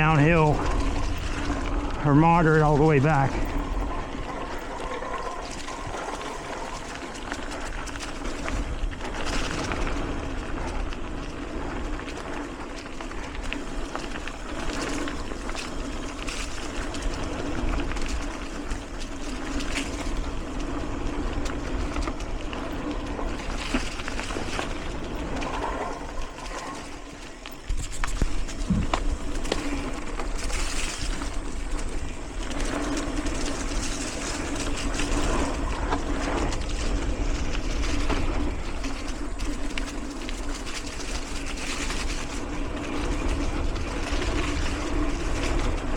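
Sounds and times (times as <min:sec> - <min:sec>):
bike rattling: 0:00.0 - 0:45.9
tyres rolling on dirt and rocks: 0:00.0 - 0:45.9
wind rushing past microphone: 0:19.9 - 0:39.8.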